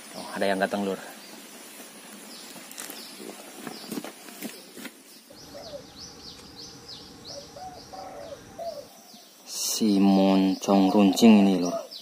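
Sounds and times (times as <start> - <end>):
quick bird chirping: 2.3 - 9.4
dove cooing: 5.4 - 9.3, 10.8 - 12.0.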